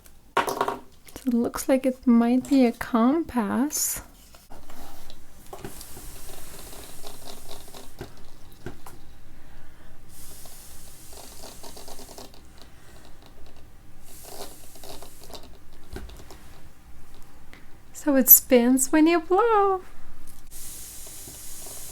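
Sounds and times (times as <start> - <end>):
airy hiss: 4.8 - 16.8, 20.5 - 21.9.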